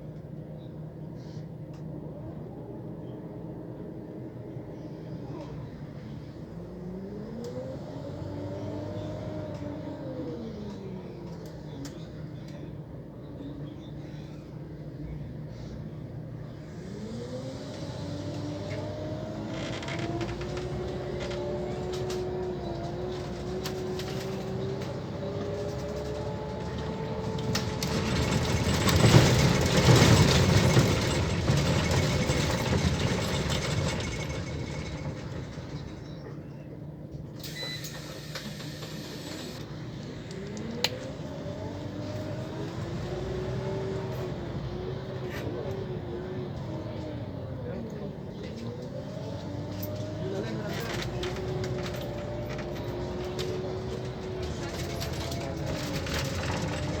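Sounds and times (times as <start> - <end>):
bus gearbox whining: 18.6 - 36.4, 37.4 - 41.6.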